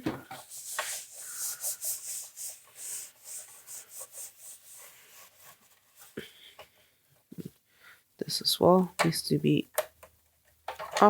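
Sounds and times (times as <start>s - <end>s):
rapid scrubbing strokes: 0.4s - 6.2s.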